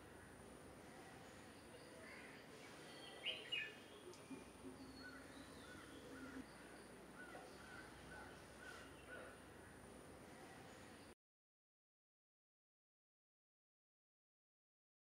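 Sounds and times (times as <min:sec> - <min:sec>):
birds calling: 0:00.0 - 0:11.1
faint outdoor ambience: 0:00.0 - 0:11.2.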